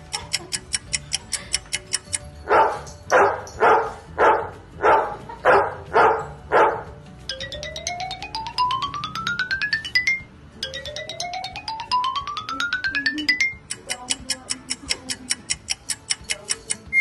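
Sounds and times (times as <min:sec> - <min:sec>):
rapid clock-like ticking: 0:00.0 - 0:02.3, 0:10.6 - 0:17.0
xylophone-like climbing notes: 0:00.0 - 0:03.1, 0:07.2 - 0:17.0.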